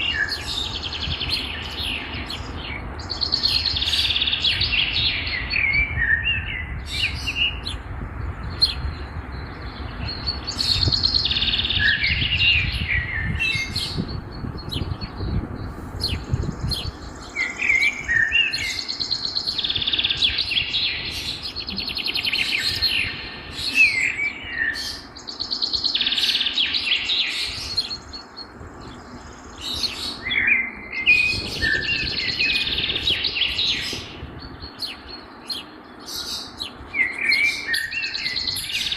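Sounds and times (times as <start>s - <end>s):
songbirds singing and chirping: 0.0s - 38.9s.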